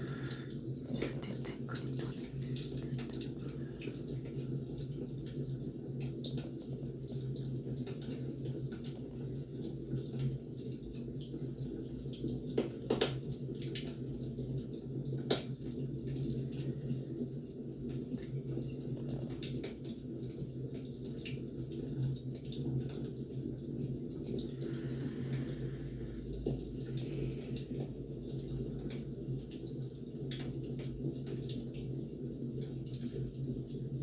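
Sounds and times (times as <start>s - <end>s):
wood fire crackling and popping: 1.8s - 34.0s.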